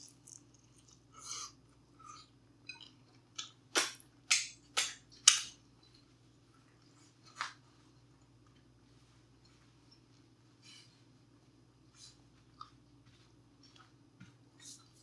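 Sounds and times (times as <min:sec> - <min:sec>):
chewing crunchy chips: 0:00.0 - 0:04.1.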